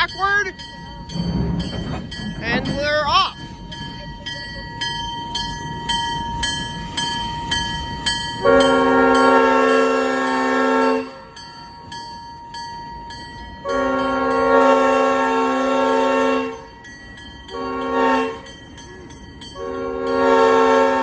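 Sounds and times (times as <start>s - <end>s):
locomotive bell ringing: 0.0s - 21.0s
locomotive horn blasts: 8.4s - 11.3s, 13.6s - 16.7s, 17.5s - 18.5s, 19.6s - 21.0s.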